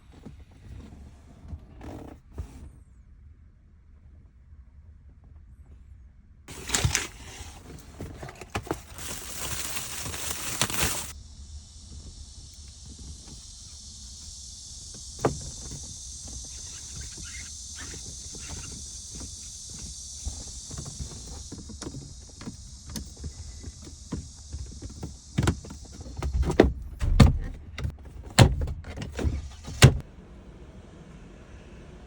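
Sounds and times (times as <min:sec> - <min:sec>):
rustling: 0:06.5 - 0:11.2
ventilation blower hissing: 0:06.5 - 0:21.6.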